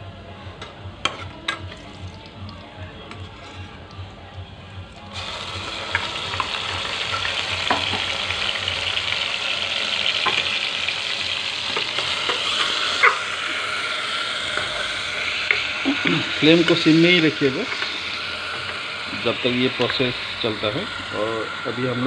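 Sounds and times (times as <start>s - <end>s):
paste sizzling in hot oil: 5.1s - 22.0s.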